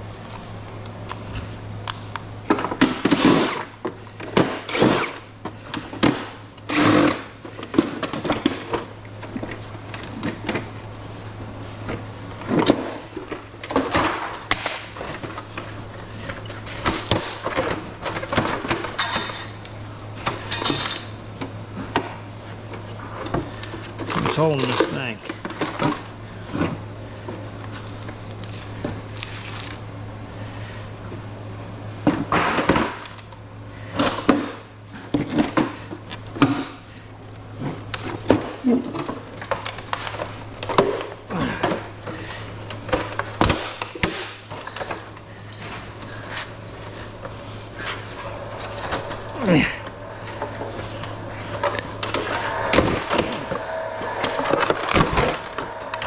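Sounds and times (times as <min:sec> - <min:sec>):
steady low hum: 0:00.0 - 0:32.4, 0:33.0 - 0:56.0
metal clanks and scrapes: 0:16.1 - 0:19.7, 0:45.6 - 0:56.0.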